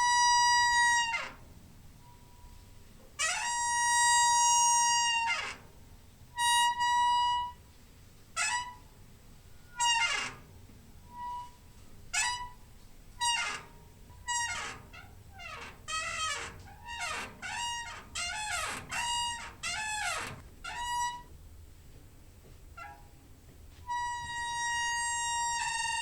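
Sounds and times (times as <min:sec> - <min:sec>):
door hinge squeaking: 0:03.2 - 0:05.8, 0:06.4 - 0:07.6, 0:08.4 - 0:09.0, 0:09.6 - 0:21.3, 0:22.8 - 0:23.2, 0:23.9 - 0:26.0.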